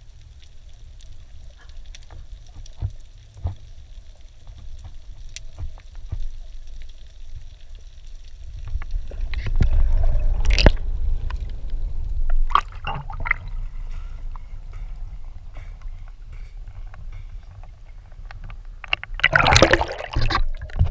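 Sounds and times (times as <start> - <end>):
water splashing and sloshing: 0.0 - 20.9
low rumble: 8.4 - 19.1.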